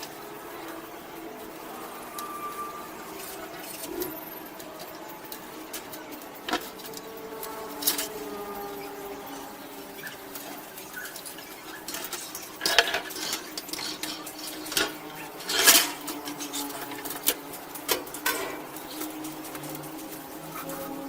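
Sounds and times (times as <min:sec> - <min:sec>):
metal parts clinking: 0:09.8 - 0:21.0.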